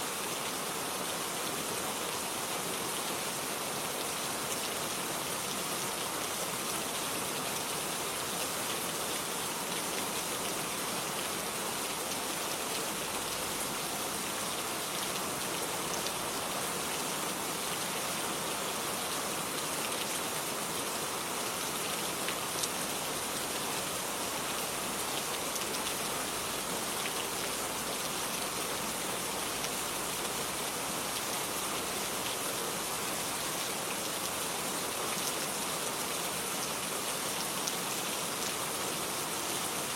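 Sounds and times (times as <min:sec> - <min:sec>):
rain falling on garden: 0:00.0 - 0:39.9.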